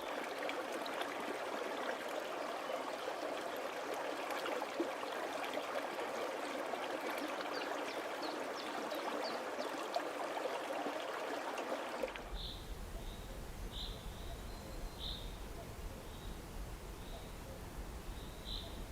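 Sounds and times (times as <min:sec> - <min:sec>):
stream water trickling: 0:00.0 - 0:18.9
faint high chirps: 0:12.3 - 0:18.9.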